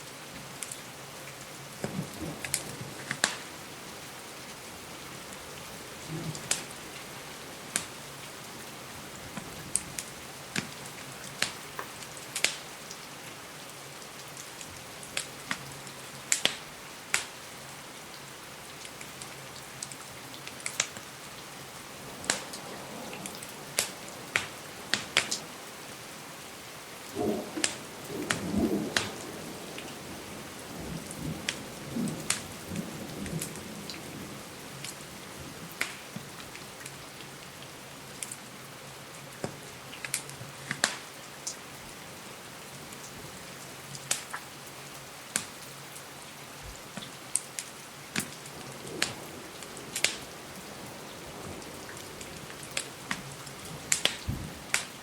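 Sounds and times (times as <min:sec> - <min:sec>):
crackling wood fire: 0:00.0 - 0:55.0
steady rain hiss: 0:00.0 - 0:55.0
distant thunder rumble: 0:05.7 - 0:08.0, 0:21.8 - 0:25.6, 0:27.0 - 0:34.6, 0:48.3 - 0:54.8.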